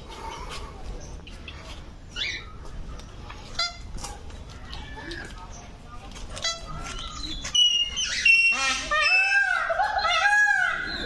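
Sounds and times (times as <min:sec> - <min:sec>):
parrots squawking: 0:06.4 - 0:11.0.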